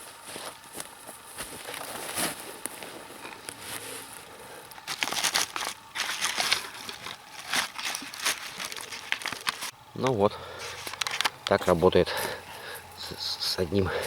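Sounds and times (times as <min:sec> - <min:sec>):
rustling: 0:00.0 - 0:04.2, 0:04.8 - 0:09.7.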